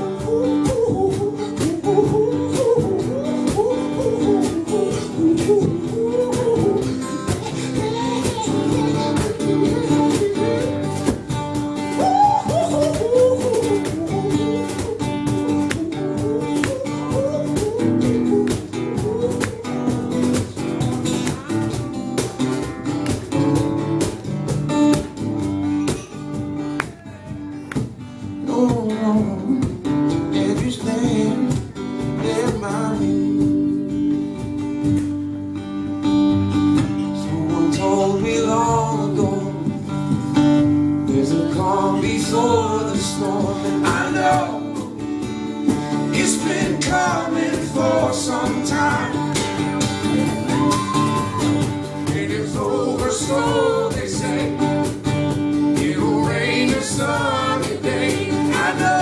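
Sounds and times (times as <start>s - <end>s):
men singing a pop song: 0.0s - 20.4s, 28.3s - 33.4s, 37.1s - 40.0s, 41.0s - 59.0s
acoustic guitar music: 0.0s - 59.0s.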